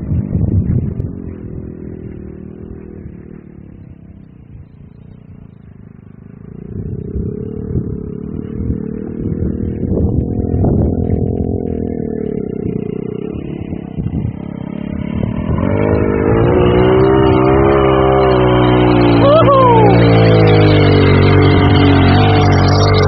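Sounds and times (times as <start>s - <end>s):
off-road vehicle engine revving: 0.0s - 5.6s, 6.2s - 23.0s.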